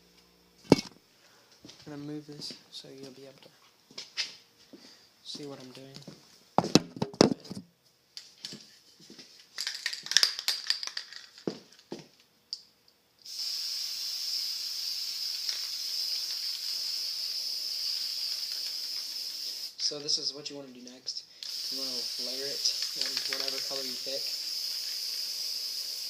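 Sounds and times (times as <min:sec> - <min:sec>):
aerosol spray can hissing: 0:13.2 - 0:19.8, 0:21.4 - 0:26.0.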